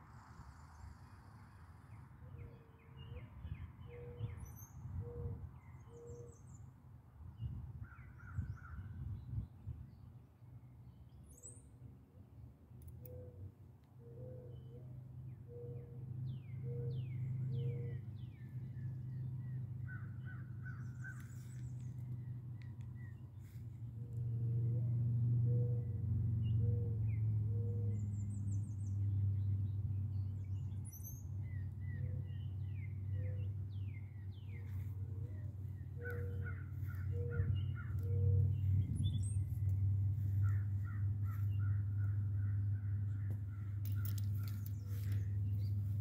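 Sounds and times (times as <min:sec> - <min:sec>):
wild birds calling: 0:15.5 - 0:28.8, 0:31.8 - 0:46.0
steady low rumble: 0:27.9 - 0:46.0.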